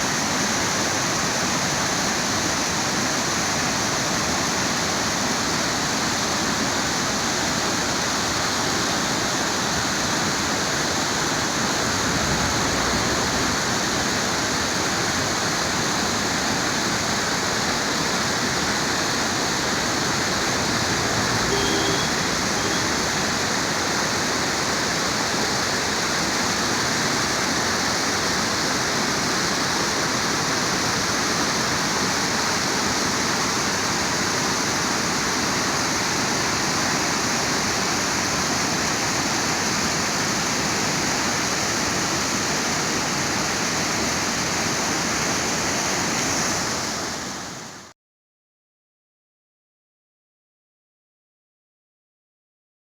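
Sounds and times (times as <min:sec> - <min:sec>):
river water rushing: 0:00.0 - 0:47.9.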